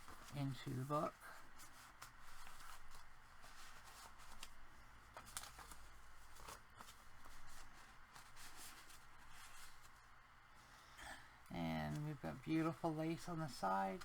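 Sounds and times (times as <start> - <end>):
paper pages rustling: 0.0 - 10.3, 11.8 - 14.0
soft clicks and crinkles: 1.6 - 10.2.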